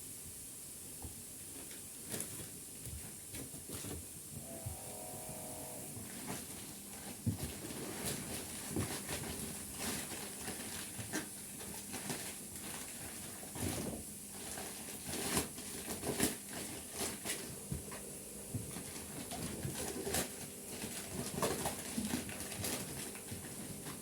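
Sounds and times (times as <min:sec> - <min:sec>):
steady high hiss: 0:04.1 - 0:06.3, 0:17.5 - 0:19.3
handling knocks and rustles: 0:06.0 - 0:24.0.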